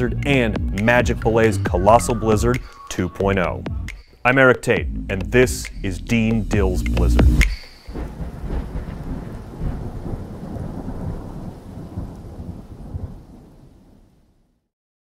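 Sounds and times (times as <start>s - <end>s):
thunder rumble: 5.6s - 14.6s
rain hiss: 5.8s - 14.4s.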